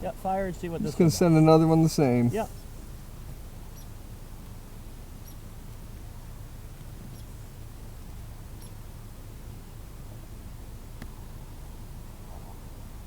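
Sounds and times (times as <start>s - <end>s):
steady low rumble: 0.0s - 13.0s
faint high-pitched chirps: 3.7s - 4.0s.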